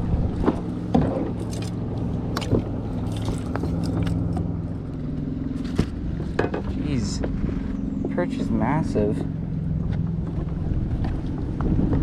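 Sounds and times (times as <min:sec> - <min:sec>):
boat motor humming: 0:00.0 - 0:12.0
sharp knocks and clicks: 0:05.7 - 0:07.4.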